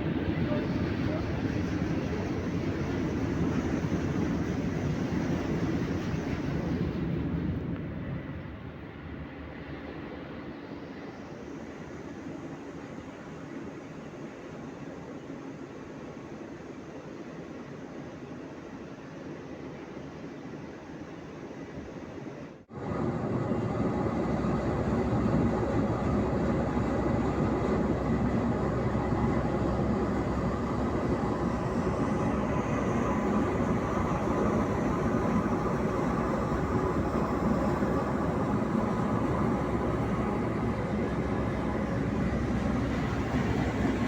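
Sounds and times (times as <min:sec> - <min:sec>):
heavy machinery rumble: 0:23.0 - 0:44.0.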